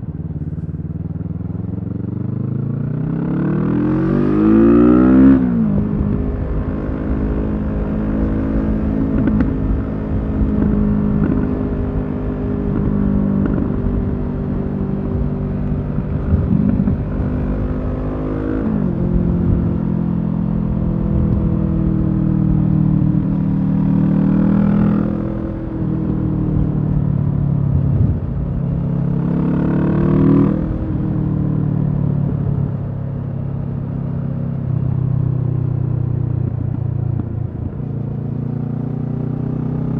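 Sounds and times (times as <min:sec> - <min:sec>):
wind rush: 0:12.7 - 0:18.0, 0:24.5 - 0:29.0.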